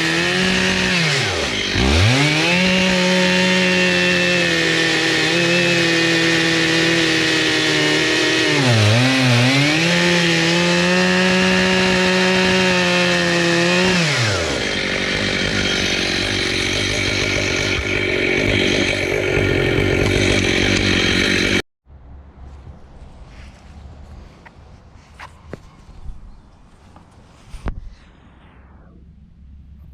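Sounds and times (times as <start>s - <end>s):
chainsaw running: 0.0s - 21.6s.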